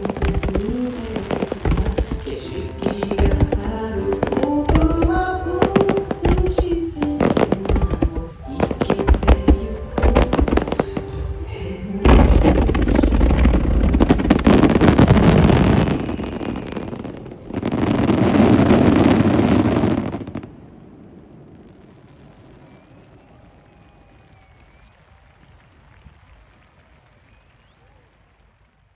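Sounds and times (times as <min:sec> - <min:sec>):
music: 0:00.0 - 0:15.3
fireworks bursting and crackling: 0:00.0 - 0:26.4.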